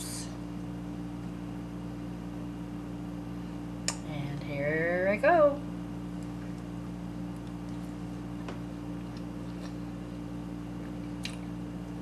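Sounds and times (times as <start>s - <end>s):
steady low hum: 0.0s - 12.0s
soft chewing clicks: 6.1s - 10.0s, 10.8s - 11.6s.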